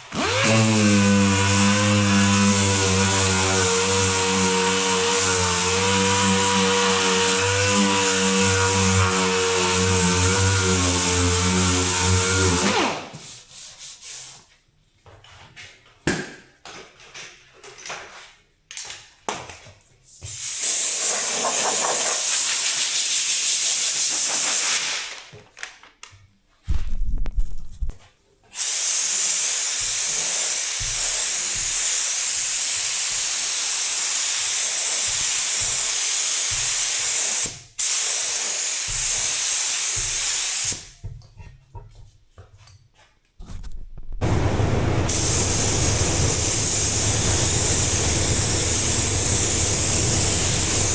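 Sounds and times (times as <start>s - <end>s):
power tool winding down: 0.0s - 13.0s, 44.2s - 50.9s
knocks and handling noises: 41.0s - 44.2s
pressurised spray hissing: 45.1s - 50.9s.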